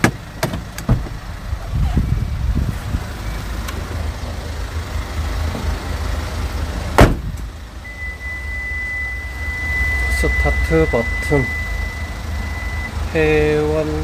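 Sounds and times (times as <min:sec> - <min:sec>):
vehicle door shutting: 0:00.0 - 0:02.2, 0:06.9 - 0:07.5
low rumble: 0:00.9 - 0:07.9
high electronic tone: 0:07.9 - 0:12.9.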